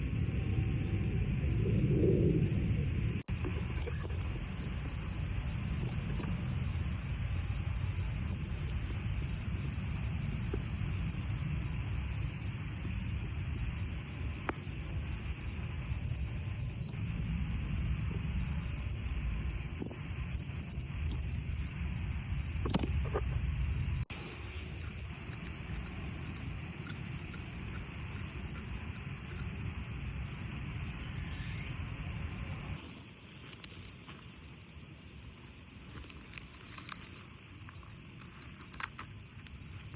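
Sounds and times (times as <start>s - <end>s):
low rumble: 0.0s - 8.3s
crickets and insects chirping: 0.0s - 39.9s.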